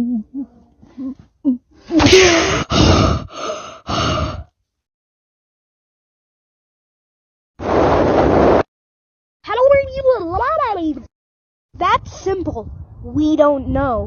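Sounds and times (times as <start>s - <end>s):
person gasping or shouting: 1.9s - 4.5s.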